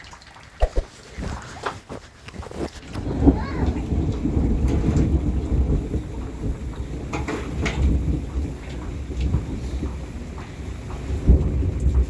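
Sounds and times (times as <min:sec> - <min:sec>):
rain falling: 0:00.0 - 0:12.0
sharp taps of raindrops: 0:00.0 - 0:12.0
low rumble of thunder or wind: 0:03.0 - 0:12.0.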